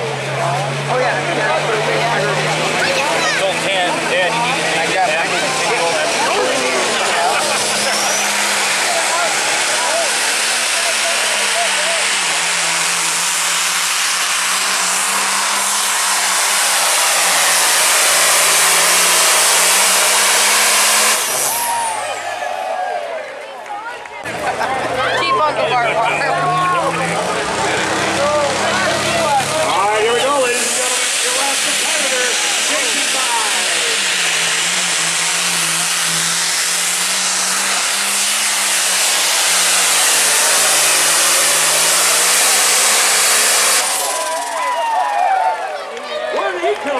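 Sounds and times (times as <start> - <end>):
diesel tractor engine at full throttle: 0.0 - 46.9.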